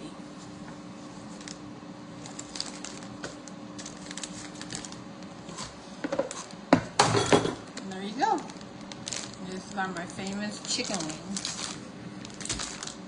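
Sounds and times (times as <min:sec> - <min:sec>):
plastic food bags crinkling: 0:01.3 - 0:05.6, 0:07.6 - 0:13.0.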